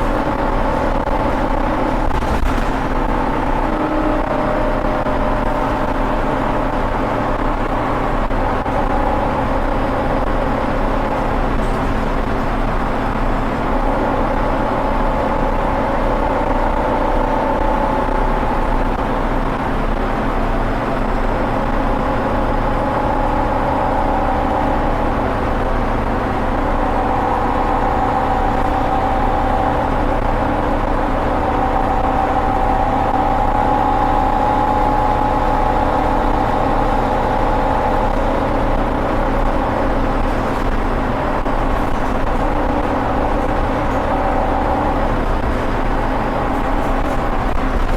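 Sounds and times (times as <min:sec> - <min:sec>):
bus diesel engine: 0:00.0 - 0:47.9
driveline whining: 0:13.6 - 0:19.3, 0:20.4 - 0:40.0, 0:41.4 - 0:46.7.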